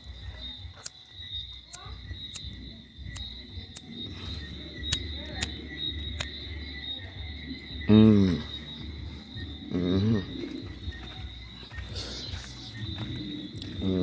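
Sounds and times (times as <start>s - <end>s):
sharp ticks: 0.0s - 7.7s
night insects chorus: 0.0s - 14.0s.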